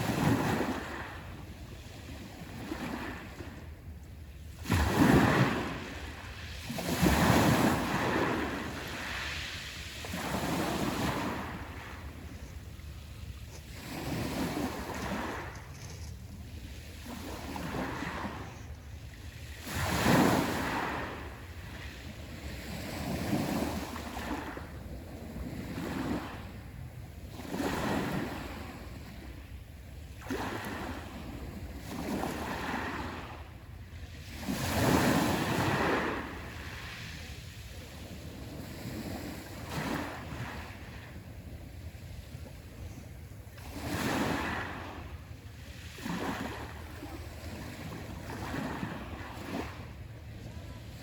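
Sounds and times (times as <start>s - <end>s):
waves breaking on shore: 0.0s - 51.0s.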